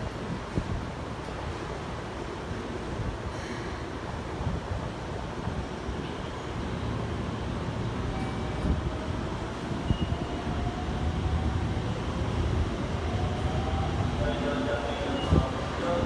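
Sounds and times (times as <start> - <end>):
electric train rumble: 4.8 - 16.0.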